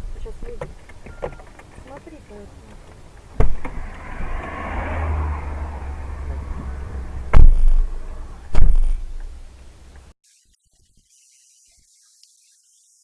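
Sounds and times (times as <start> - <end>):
loud collision bangs: 3.4 - 9.6
low rumble: 3.4 - 10.1.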